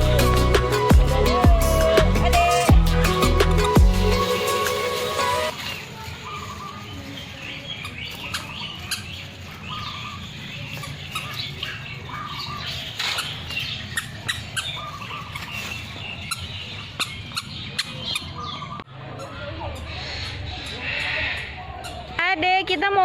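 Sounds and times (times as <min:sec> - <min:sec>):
birds squawking and calling: 0:00.0 - 0:22.2.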